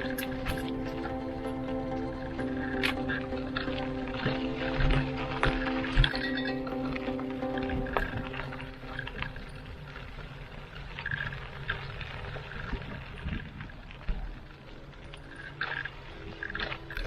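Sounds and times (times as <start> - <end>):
wind and rolling tyres: 0.0 - 17.0
small clicks and rattles: 7.6 - 17.0.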